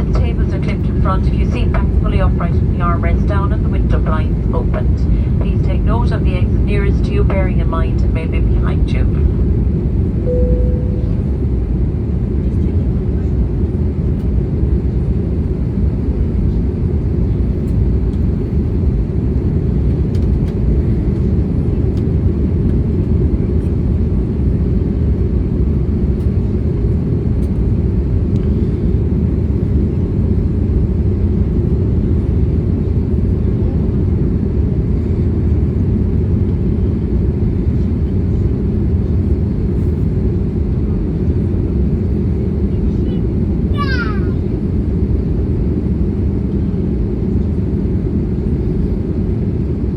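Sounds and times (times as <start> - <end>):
airflow over fuselage: 0.0 - 12.4
jet engine cabin rumble: 0.0 - 49.9.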